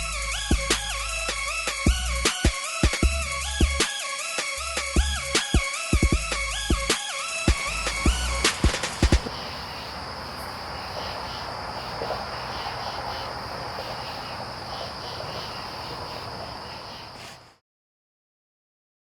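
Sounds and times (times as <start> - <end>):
crickets trilling: 5.7 - 17.6
faint pulsing chirp: 7.5 - 17.5.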